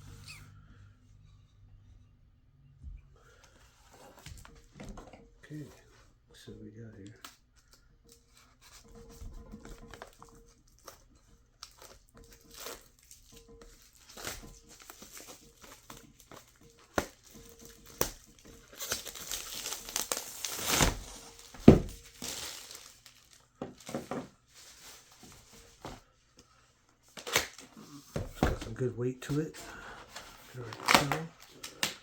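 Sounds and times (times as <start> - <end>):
wrapping crinkling and tearing: 7.1 - 25.9, 27.0 - 28.2, 29.2 - 32.0.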